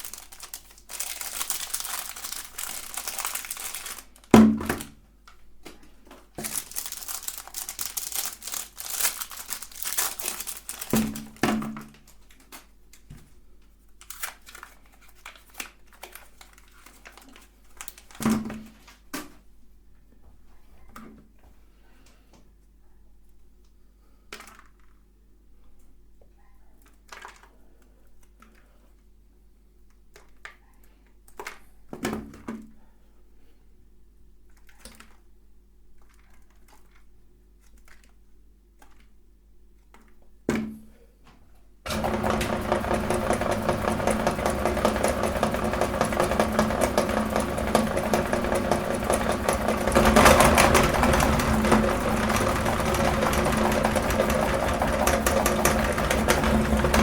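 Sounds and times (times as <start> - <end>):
meat grinder motor grinding: 41.9 - 57.0.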